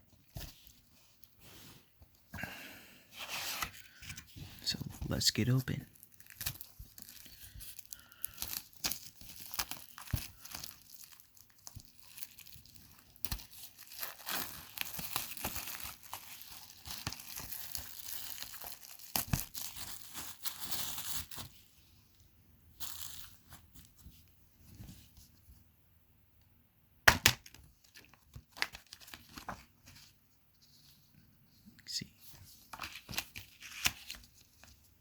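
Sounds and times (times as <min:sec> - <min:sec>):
plastic shrink-wrap tearing: 0:06.0 - 0:21.4.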